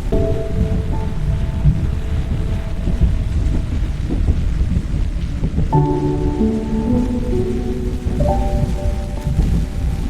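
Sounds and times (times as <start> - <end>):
deep continuous rumble: 0.0 - 10.0
steady rain: 0.0 - 10.0.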